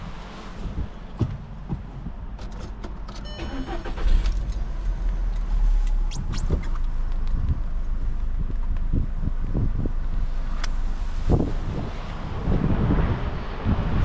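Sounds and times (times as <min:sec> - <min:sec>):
car engine rumbling: 0:00.0 - 0:14.0
starter whine: 0:03.2 - 0:06.9.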